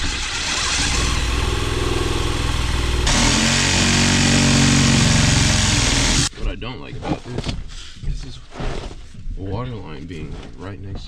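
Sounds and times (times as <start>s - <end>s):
motor-driven machine running: 0.6s - 6.3s.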